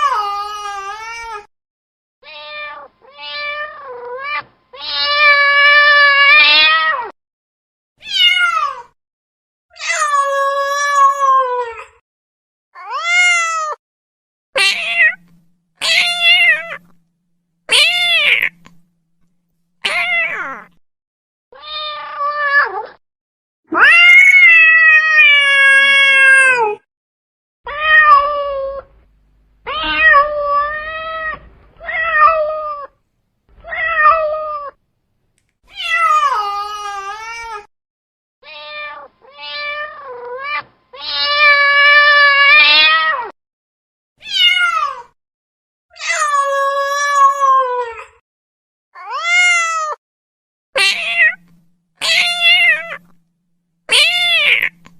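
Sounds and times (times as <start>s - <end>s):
cat meowing: 2.2s - 7.1s, 8.0s - 8.9s, 14.6s - 17.0s, 17.7s - 18.9s, 19.8s - 20.8s, 21.6s - 23.0s, 23.7s - 26.8s, 27.7s - 29.0s, 29.6s - 33.0s, 33.6s - 34.8s, 38.4s - 43.3s, 44.2s - 45.1s, 50.8s - 53.2s, 53.9s - 54.9s.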